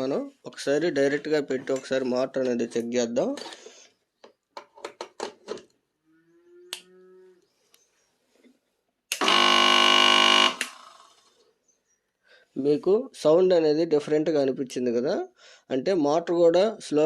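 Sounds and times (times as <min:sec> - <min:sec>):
mixer grinder motor buzzing: 0:09.2 - 0:11.3.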